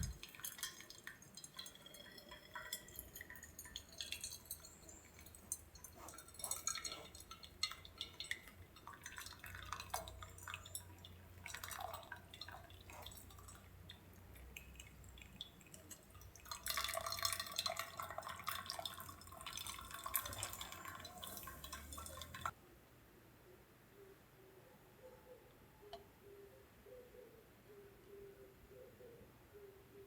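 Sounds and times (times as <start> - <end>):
liquid dripping and trickling: 0.0 - 22.5
steady splashing: 0.0 - 22.5.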